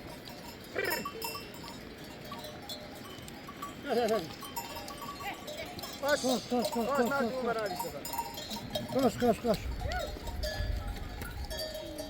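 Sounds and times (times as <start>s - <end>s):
sheep bells ringing: 0.0s - 12.0s
sheep bleating: 0.7s - 1.2s.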